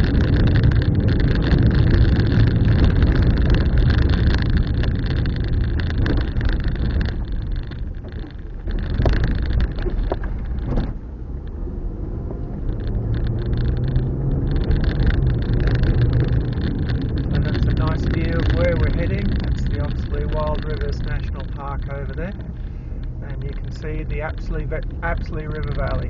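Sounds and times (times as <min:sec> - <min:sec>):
car engine and tyre rumble: 0:00.0 - 0:26.0.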